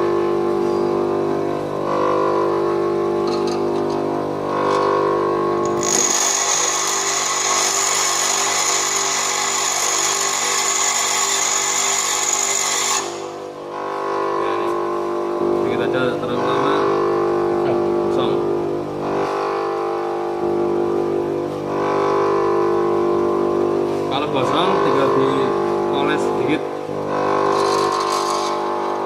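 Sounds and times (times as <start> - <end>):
tool bit grinding hiss and whine: 0.0 - 29.0
bench grinder motor humming: 1.6 - 14.7, 24.4 - 29.0.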